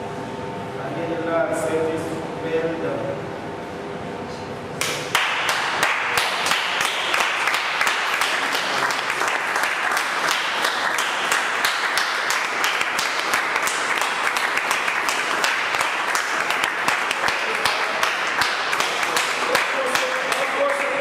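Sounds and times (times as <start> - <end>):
crowd applauding: 4.8 - 21.0.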